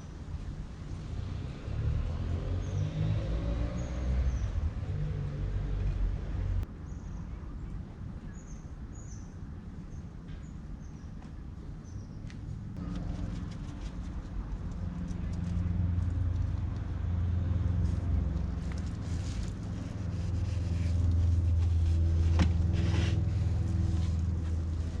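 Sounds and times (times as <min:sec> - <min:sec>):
vehicle engine rumbling: 0:12.5 - 0:25.0.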